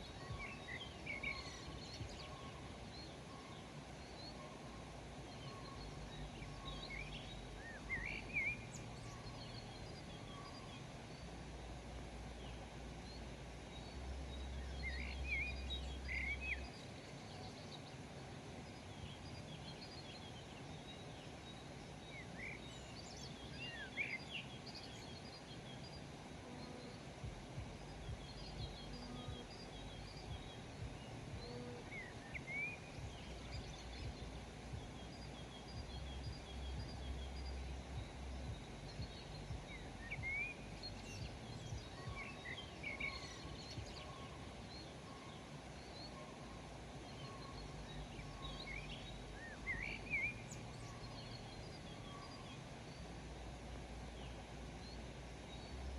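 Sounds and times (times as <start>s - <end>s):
birds chirping: 0.0s - 55.9s
steady background hiss: 0.0s - 55.9s
low rumble: 27.2s - 32.2s, 32.8s - 41.9s.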